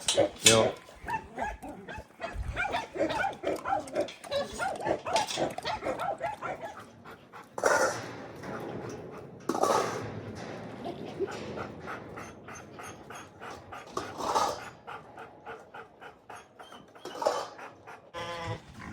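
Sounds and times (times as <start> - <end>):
dog whining and yelping: 0.0 - 7.1, 12.2 - 18.7.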